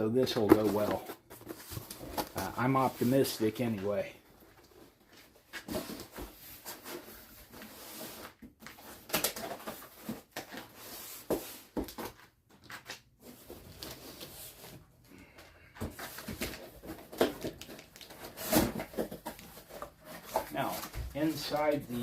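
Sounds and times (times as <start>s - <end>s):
packaging rustling: 15.9s - 22.0s.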